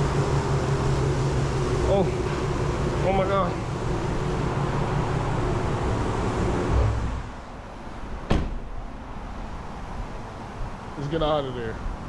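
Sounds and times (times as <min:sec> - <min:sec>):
car wash rushing: 0:00.0 - 0:11.1
door shutting knock: 0:08.2 - 0:08.8.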